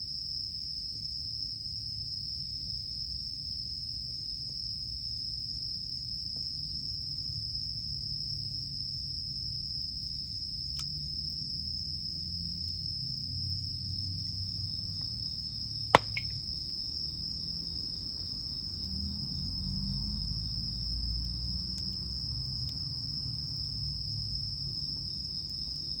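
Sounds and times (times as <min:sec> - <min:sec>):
insects trilling: 0:00.1 - 0:26.0
burning wood crackling and popping: 0:15.9 - 0:16.4
wood campfire burning: 0:16.0 - 0:16.4, 0:21.3 - 0:23.7.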